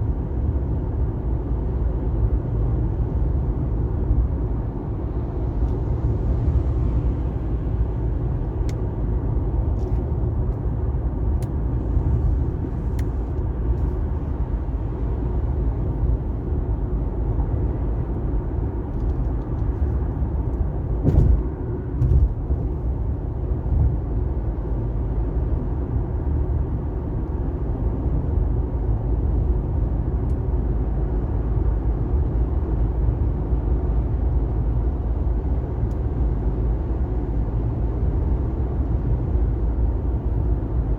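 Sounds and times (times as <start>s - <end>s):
road and tyre noise: 0.0s - 40.9s
car bumps: 21.0s - 22.4s.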